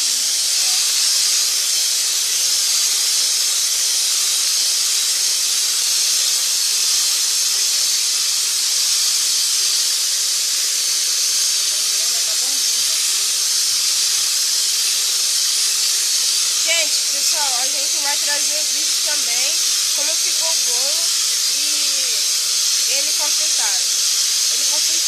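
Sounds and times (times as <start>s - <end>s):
electric mixer beating batter: 9.6s - 25.0s.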